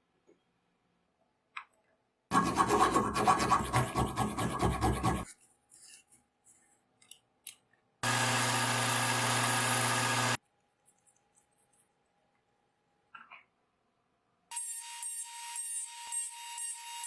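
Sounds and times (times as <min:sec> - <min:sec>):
rapid scraping strokes: 0:02.3 - 0:05.3
power tool humming: 0:08.0 - 0:10.4.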